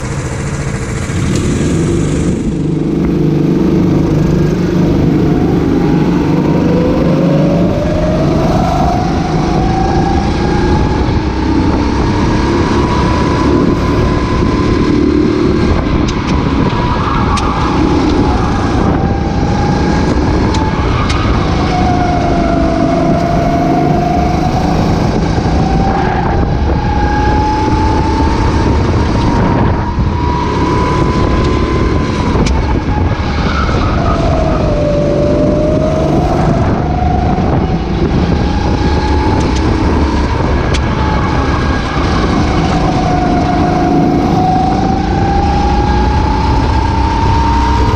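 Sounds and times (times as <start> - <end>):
kart engine revving: 0.0 - 47.9
wind across microphone: 0.0 - 47.9.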